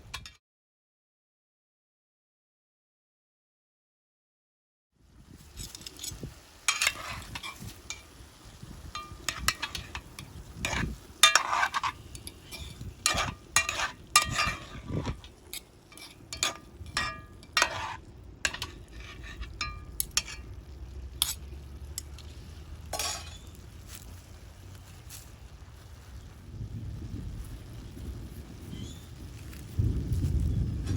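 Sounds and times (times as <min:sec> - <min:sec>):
metal utensil scraping a pan: 0:00.0 - 0:00.4, 0:05.4 - 0:23.8
frying sizzle: 0:05.0 - 0:30.9.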